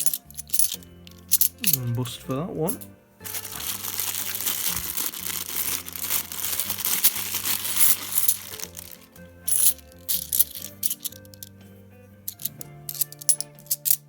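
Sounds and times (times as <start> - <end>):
soft background music: 0.0 - 14.0
plastic bag crinkling: 3.2 - 9.1.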